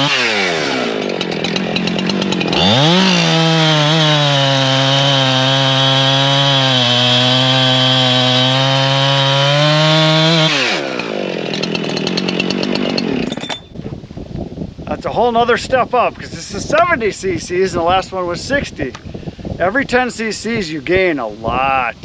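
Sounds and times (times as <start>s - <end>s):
chainsaw cutting through log: 0.0s - 13.6s
chainsaw idling: 0.0s - 13.8s.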